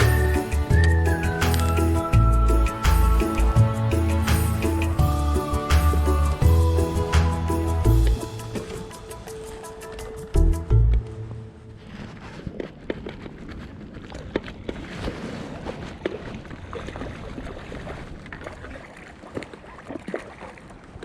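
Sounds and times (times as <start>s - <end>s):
water washing: 0.0s - 11.0s
wind: 0.0s - 21.0s.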